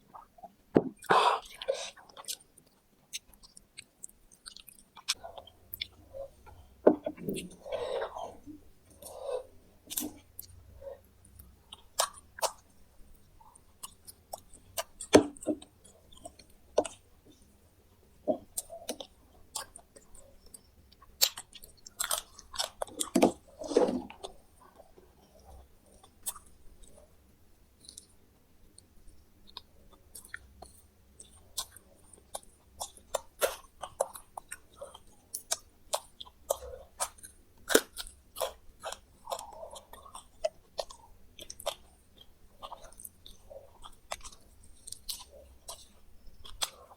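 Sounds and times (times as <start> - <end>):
person chewing crunchy food: 0.1 - 17.5, 18.3 - 27.1, 27.8 - 46.9.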